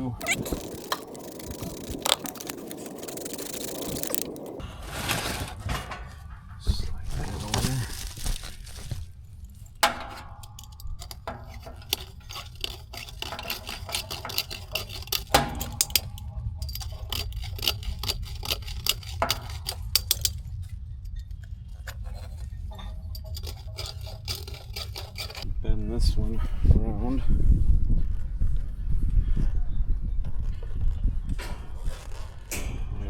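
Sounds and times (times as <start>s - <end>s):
steady low hum: 5.5s - 27.6s
sharp ringing metal knocks: 9.8s - 18.3s.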